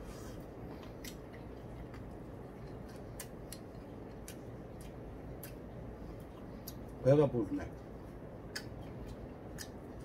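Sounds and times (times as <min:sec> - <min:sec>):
steady low hum: 0:00.0 - 0:10.0
chewing: 0:00.3 - 0:07.0, 0:07.8 - 0:10.0
wet mouth clicks: 0:08.5 - 0:09.8.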